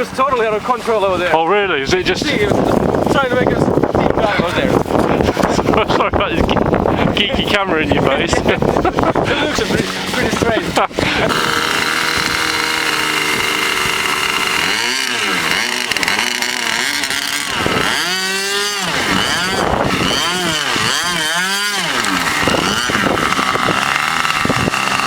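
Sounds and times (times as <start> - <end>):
model plane motor whining: 9.3 - 25.0.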